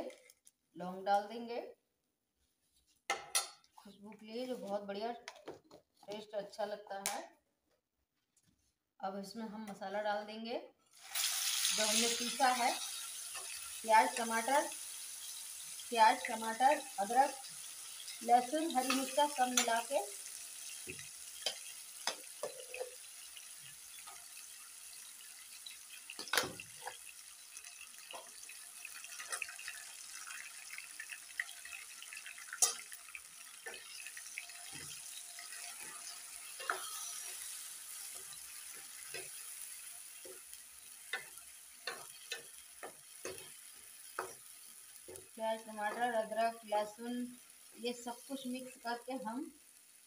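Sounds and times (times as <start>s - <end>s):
paste sizzling in oil: 10.9s - 50.0s
ladle scraping and tapping pan: 35.7s - 37.5s.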